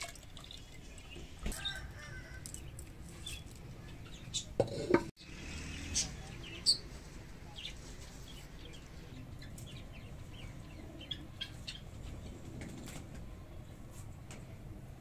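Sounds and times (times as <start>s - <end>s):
small birds chirping: 0.4s - 4.6s, 5.5s - 12.3s.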